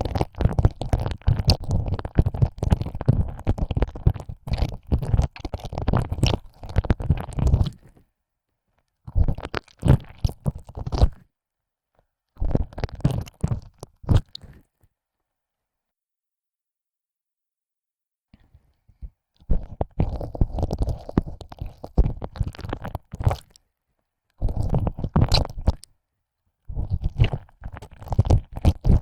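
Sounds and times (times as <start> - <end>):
wet ear-licking mouth noises: 19.4 - 23.6, 24.3 - 25.9, 26.7 - 29.0.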